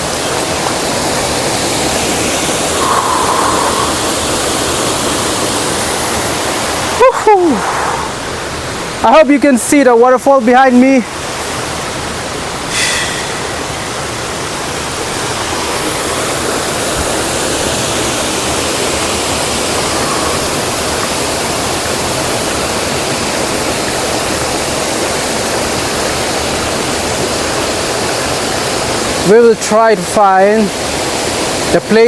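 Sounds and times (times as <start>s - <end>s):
waterfall roaring: 0.0s - 32.0s
brief sharp high sound: 12.7s - 14.0s.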